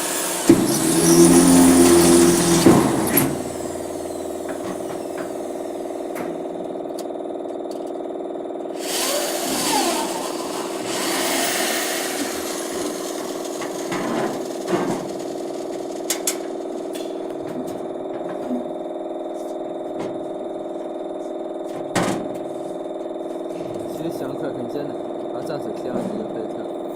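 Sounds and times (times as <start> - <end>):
loud hissing bursts: 0.0 - 6.1, 8.8 - 16.1
lathe motor humming: 0.0 - 7.4, 8.8 - 14.7.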